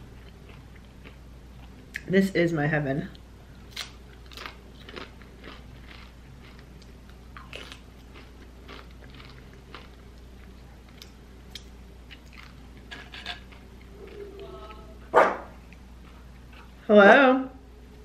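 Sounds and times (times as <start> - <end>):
chips crunching: 3.7 - 14.2.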